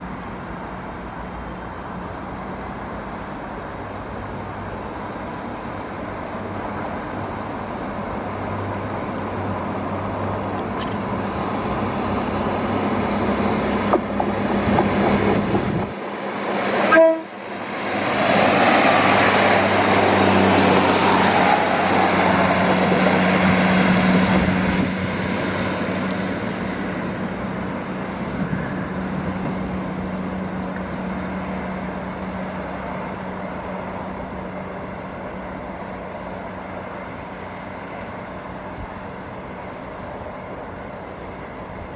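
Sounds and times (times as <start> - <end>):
diesel train engine hum: 0.0 - 41.9
train horn toot: 16.9 - 17.3.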